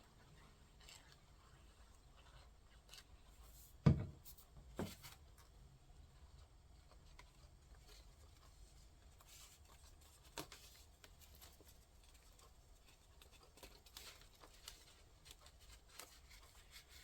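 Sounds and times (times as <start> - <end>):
paper rustling: 9.2 - 17.0.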